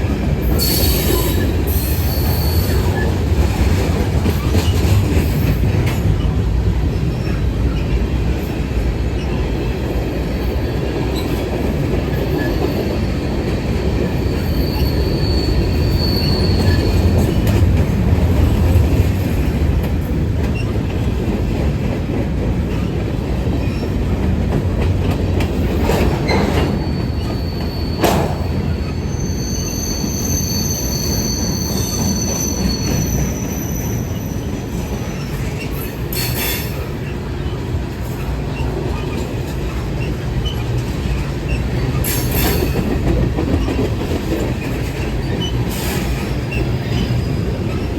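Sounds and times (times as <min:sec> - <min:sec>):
sharp clacks from rails: 0:00.0 - 0:09.3, 0:16.4 - 0:29.0, 0:34.8 - 0:47.9
train wheels rumbling: 0:00.0 - 0:47.9
high wheel squeals: 0:00.5 - 0:03.2, 0:12.1 - 0:17.5, 0:26.2 - 0:37.6, 0:44.6 - 0:47.9.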